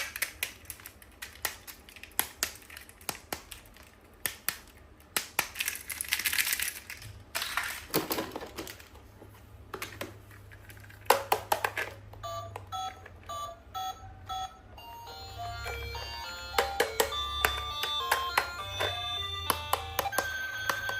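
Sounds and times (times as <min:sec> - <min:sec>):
electronic toy beeps: 0:12.2 - 0:20.9.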